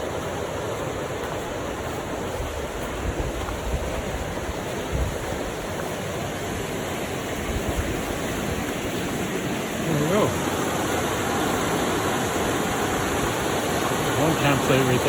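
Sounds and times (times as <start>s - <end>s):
moving water: 0.0s - 15.0s
wind buffeting microphone: 1.1s - 9.4s.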